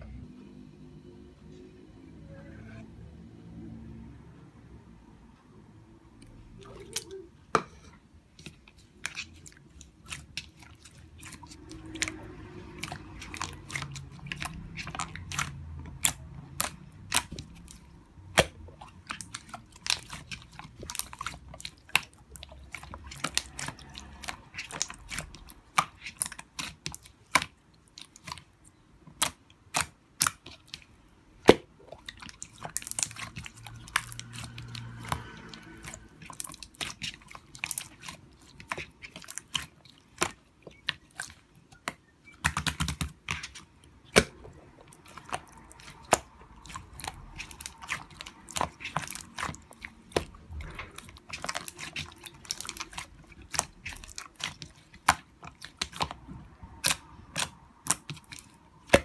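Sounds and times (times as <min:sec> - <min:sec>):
crunchy food chewing: 0:18.8 - 0:28.4, 0:32.0 - 0:59.0.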